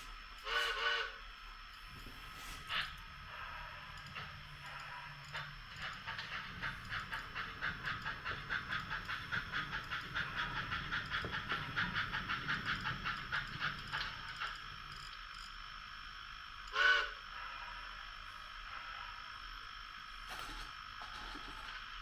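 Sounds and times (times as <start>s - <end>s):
low running rumble: 1.8s - 15.0s
model steam locomotive chuffing: 1.8s - 15.1s, 16.7s - 19.4s.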